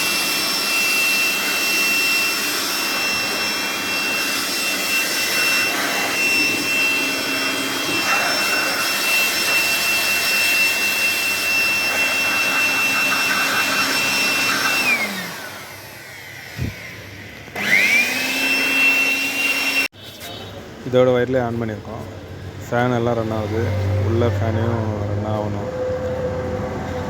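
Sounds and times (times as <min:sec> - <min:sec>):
electric motor whining: 0:00.0 - 0:19.9.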